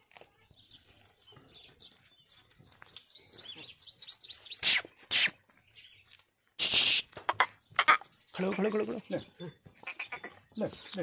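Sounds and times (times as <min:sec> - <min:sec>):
small bird chirping: 0:00.3 - 0:11.0
short loud hissing bursts: 0:04.6 - 0:05.4, 0:06.6 - 0:07.1.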